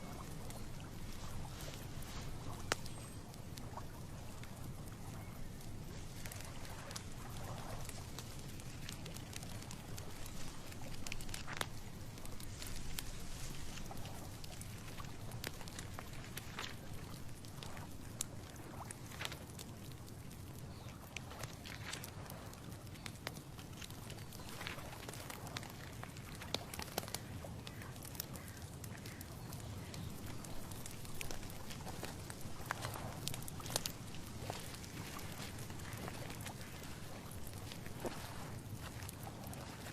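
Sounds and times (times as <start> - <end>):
low wind rumble: 0.0 - 26.3
light ticks and rustles: 0.0 - 39.9.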